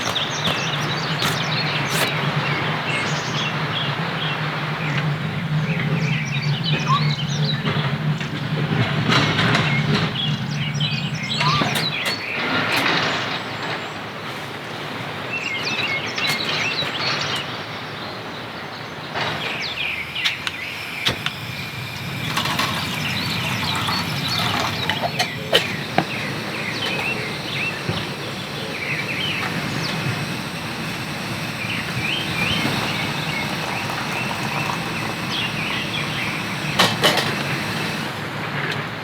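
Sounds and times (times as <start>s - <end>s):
birds chirping: 0.0s - 39.0s
low hum: 19.3s - 38.4s.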